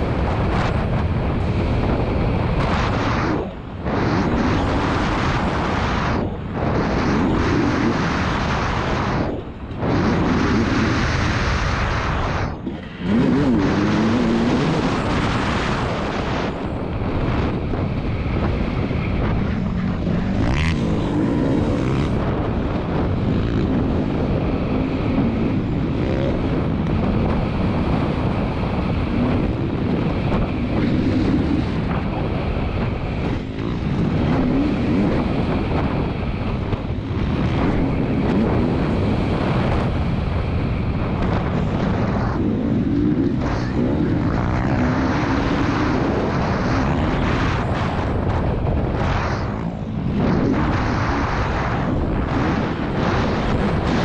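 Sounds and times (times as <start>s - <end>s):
motocross engine revving: 12.6s - 16.6s, 18.4s - 26.8s.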